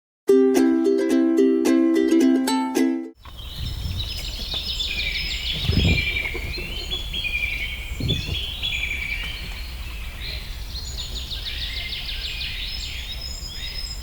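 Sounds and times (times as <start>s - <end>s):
dull thumps: 3.2s - 11.4s
birds chirping and trilling: 3.2s - 14.0s
low background rumble: 3.2s - 14.0s.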